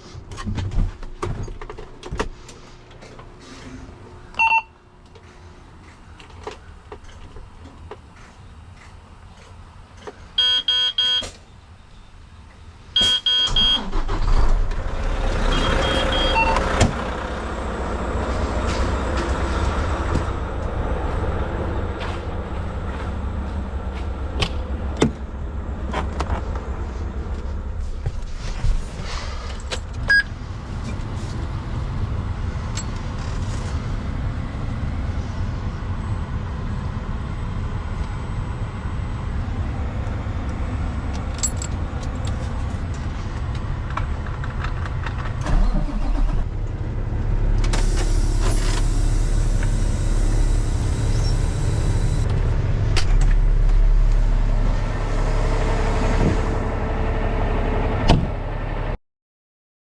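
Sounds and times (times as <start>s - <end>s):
vehicle engine running: 13.8s - 59.0s.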